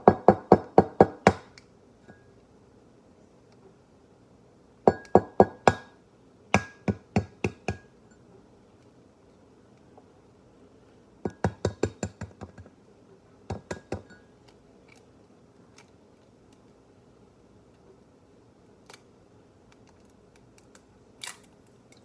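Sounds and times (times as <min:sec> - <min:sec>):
egg tapping against mug rim: 0:11.3 - 0:12.7, 0:13.5 - 0:14.2.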